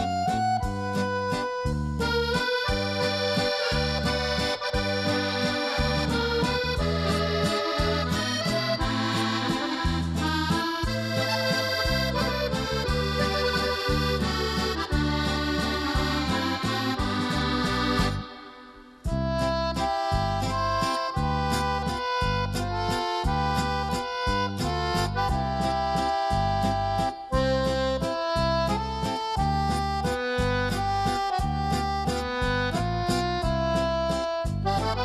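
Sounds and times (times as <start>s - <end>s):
accordion music: 0.0s - 35.0s.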